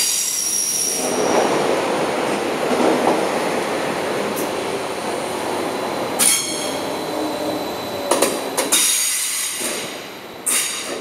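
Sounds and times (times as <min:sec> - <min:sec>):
train wheels running on rails: 0:00.0 - 0:11.0
high-pitched wheel squeal: 0:06.2 - 0:06.8.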